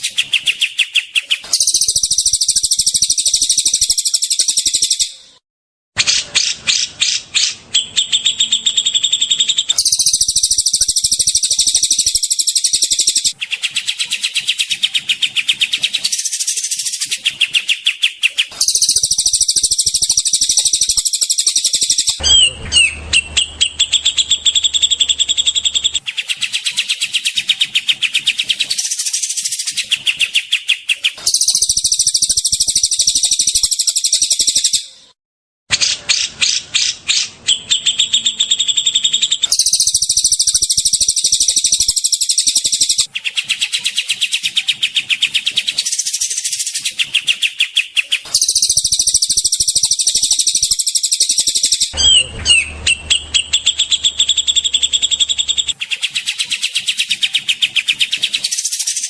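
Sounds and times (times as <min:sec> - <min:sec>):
songbirds singing: 0:00.0 - 0:05.3, 0:06.1 - 0:35.0, 0:35.7 - 0:59.0.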